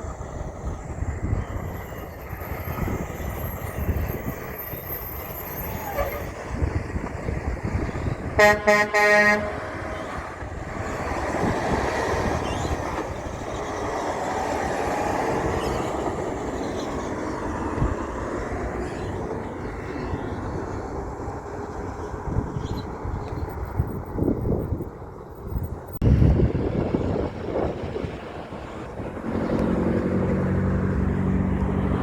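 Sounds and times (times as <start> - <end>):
truck passing: 0.0 - 32.0
truck air horn blasts: 5.8 - 6.4, 8.3 - 10.1.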